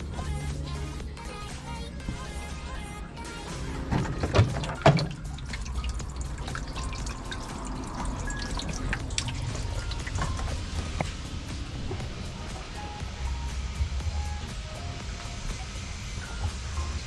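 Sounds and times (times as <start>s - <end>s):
steady low hum: 0.0s - 17.0s
water dripping and splashing: 3.8s - 12.8s.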